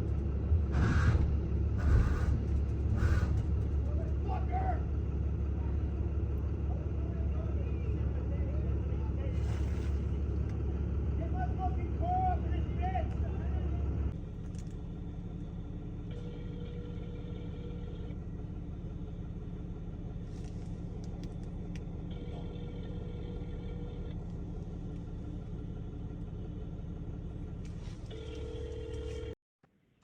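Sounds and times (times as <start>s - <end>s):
vehicle engine idling: 0.0s - 29.4s
telephone ringback tone: 16.2s - 18.1s, 28.1s - 29.4s.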